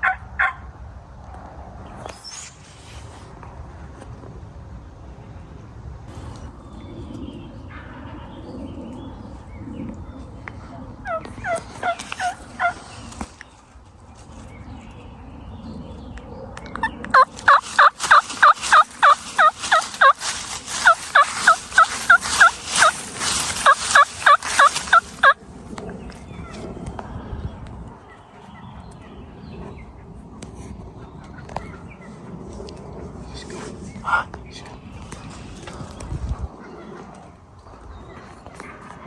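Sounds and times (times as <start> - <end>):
turkey yelping: 17.2 - 25.4.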